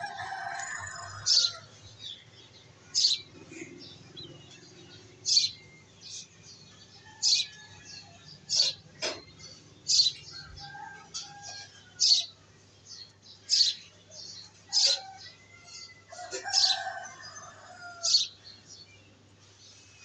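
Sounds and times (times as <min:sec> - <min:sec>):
bird chirping: 0:00.0 - 0:10.5.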